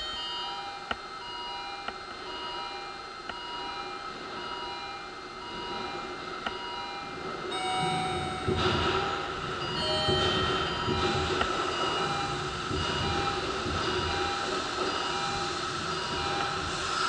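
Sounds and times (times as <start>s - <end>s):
train rumble: 5.3s - 17.0s.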